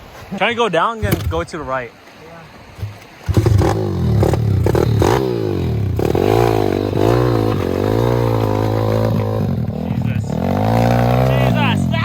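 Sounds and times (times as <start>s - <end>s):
pit bike engine revving: 3.2s - 12.0s.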